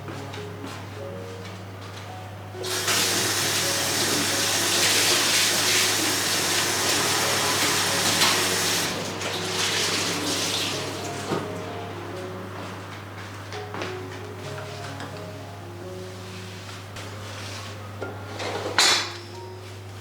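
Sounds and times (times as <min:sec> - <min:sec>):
water running from a tap: 0:02.6 - 0:11.4.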